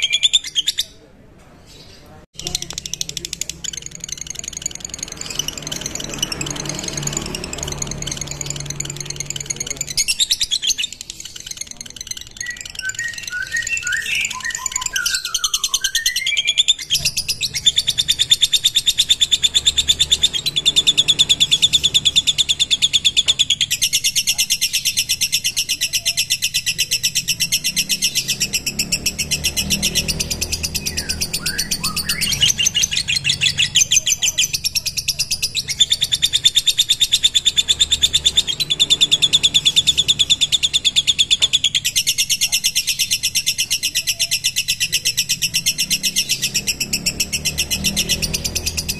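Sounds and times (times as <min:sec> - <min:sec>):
lovebird chattering trill: 0:00.0 - 0:01.0, 0:01.8 - 0:48.9
bird chirps: 0:00.0 - 0:48.9.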